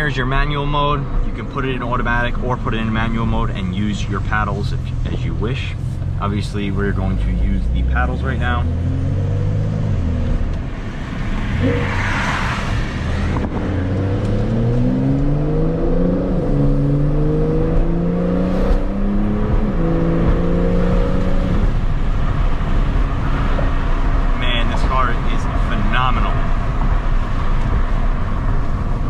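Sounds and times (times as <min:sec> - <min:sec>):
car engine accelerating through gears: 0:07.0 - 0:24.4.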